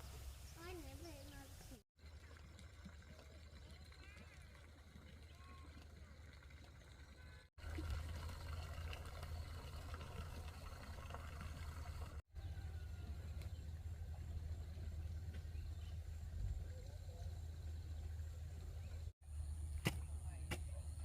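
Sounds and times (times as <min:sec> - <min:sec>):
low outdoor rumble: 0:04.8 - 0:21.0.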